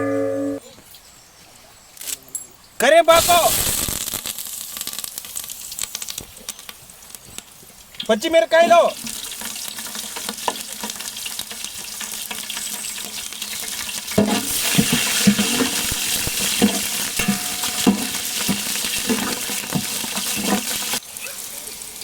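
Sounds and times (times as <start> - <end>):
spices sizzling in hot oil: 3.1 - 22.0
spoon knocking against pan: 14.2 - 20.7.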